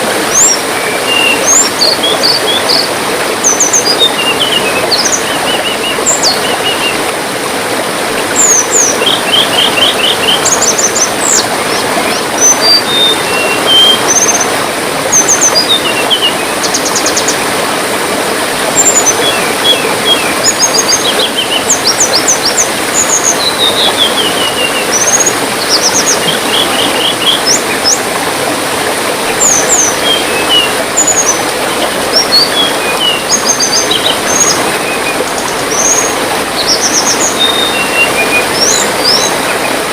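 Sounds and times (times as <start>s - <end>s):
trickle of running water: 0.0s - 39.9s
songbirds chirping and trilling: 29.3s - 39.9s.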